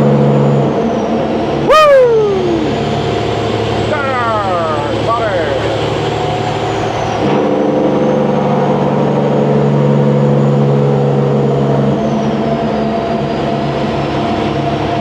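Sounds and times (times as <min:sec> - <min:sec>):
truck diesel engine droning: 0:00.0 - 0:15.0
turbo whistle: 0:01.6 - 0:03.1.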